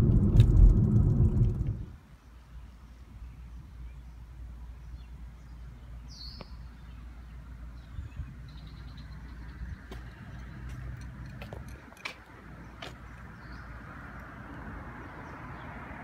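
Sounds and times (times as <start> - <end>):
low steady rumble: 0.0 - 2.0
bird chirp: 2.1 - 15.8.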